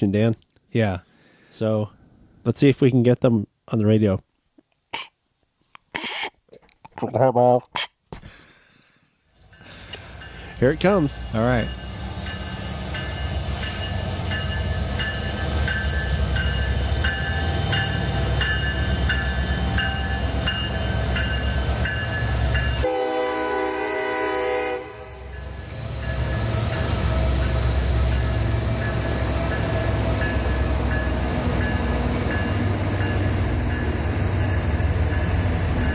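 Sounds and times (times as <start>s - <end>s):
model train rumbling past: 9.4s - 35.9s
train horn: 22.8s - 25.4s.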